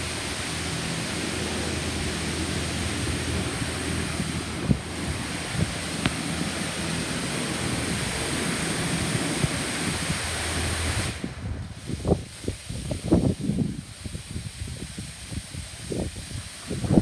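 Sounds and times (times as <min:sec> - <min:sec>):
car wash spraying water: 0:00.0 - 0:17.0.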